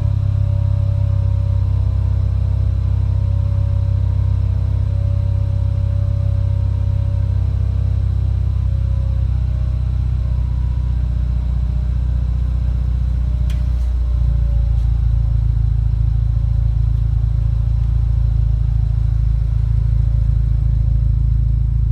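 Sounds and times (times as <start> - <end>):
car engine idling rumble: 0.0 - 21.9
brief click: 13.5 - 14.0.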